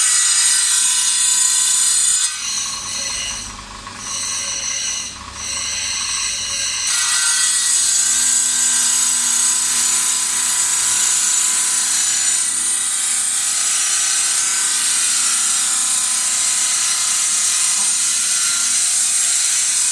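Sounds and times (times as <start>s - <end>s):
grinding wheel hiss: 8.0s - 19.9s.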